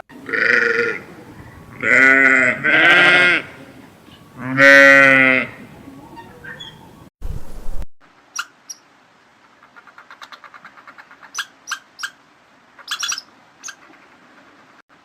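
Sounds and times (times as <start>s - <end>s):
small animal squeaking: 6.0s - 6.9s, 12.8s - 13.9s.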